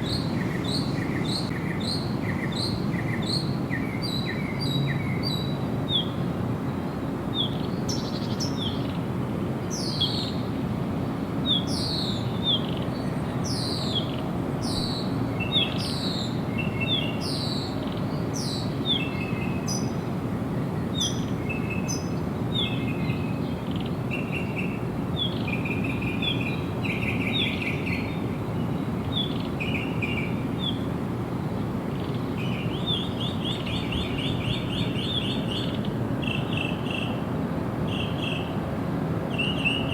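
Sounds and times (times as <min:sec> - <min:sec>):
songbirds chirping and trilling: 0:00.0 - 0:10.5, 0:11.4 - 0:39.9.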